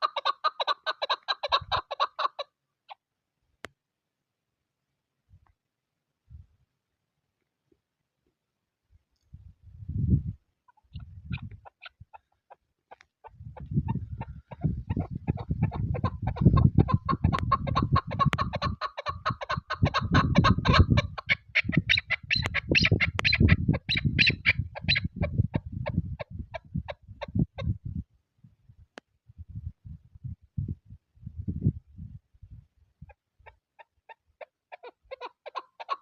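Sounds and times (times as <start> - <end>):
partridge calling: 0.0 - 2.4, 10.7 - 25.3, 33.4 - 36.0
wind buffeting microphone: 9.3 - 12.2, 13.3 - 33.1.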